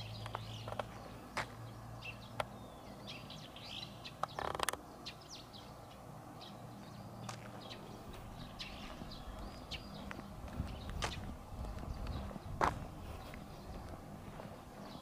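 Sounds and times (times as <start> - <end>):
songbirds chirping: 0.0 - 15.0
scuffing noise: 7.2 - 15.0.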